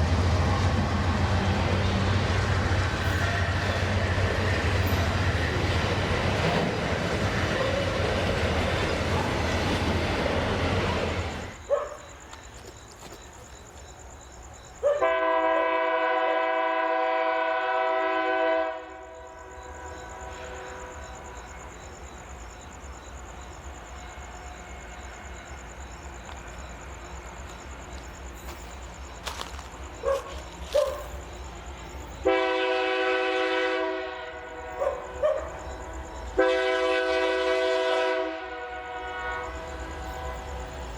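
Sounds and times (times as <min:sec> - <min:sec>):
train passing rumble and rattle: 0:00.0 - 0:40.9
locomotive air horn: 0:15.0 - 0:19.2, 0:32.2 - 0:34.8, 0:36.4 - 0:40.7.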